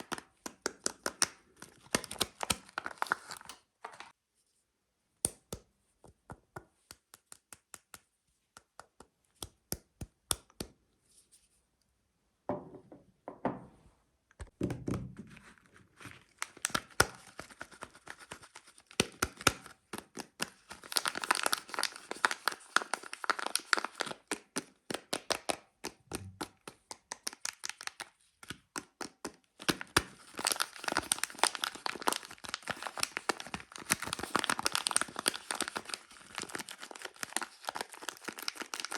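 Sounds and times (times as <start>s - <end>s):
wrapper crinkling and tearing: 0.9s - 4.2s, 16.0s - 24.7s, 27.3s - 28.1s, 29.6s - 38.9s.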